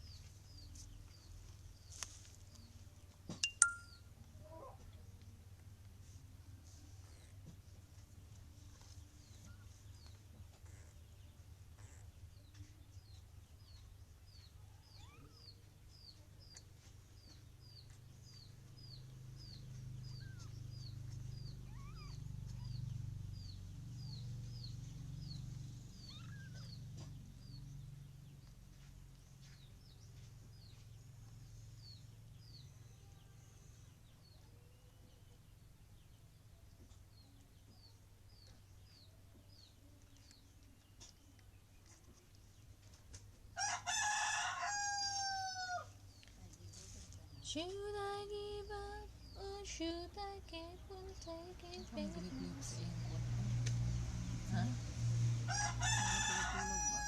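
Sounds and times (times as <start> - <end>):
faint low rumble: 0.0 - 43.2
small bird chirping: 3.4 - 4.8, 6.7 - 42.9.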